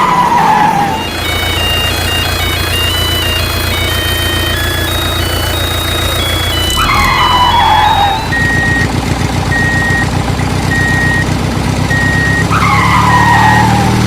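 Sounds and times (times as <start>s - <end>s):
falling squeal: 0.0s - 8.9s, 11.9s - 14.0s
reversing alarm beeping: 0.0s - 13.9s
heavy vehicle engine chugging: 0.0s - 14.0s.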